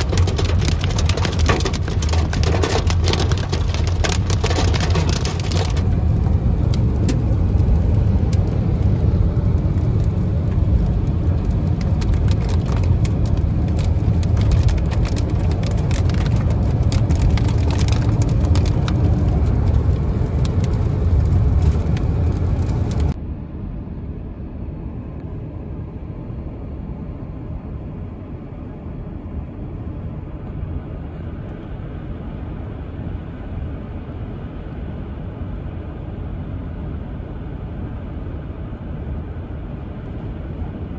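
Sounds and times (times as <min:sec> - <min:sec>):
hail and rain pelting a car: 0:00.0 - 0:05.8, 0:10.6 - 0:23.2
car cabin rumble: 0:00.0 - 0:07.8.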